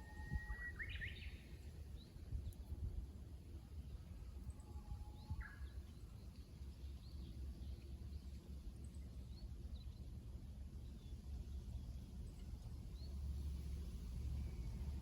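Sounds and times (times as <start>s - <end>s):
bird singing whistled song: 0.0s - 1.6s, 5.1s - 6.0s
low outdoor rumble: 5.8s - 15.0s.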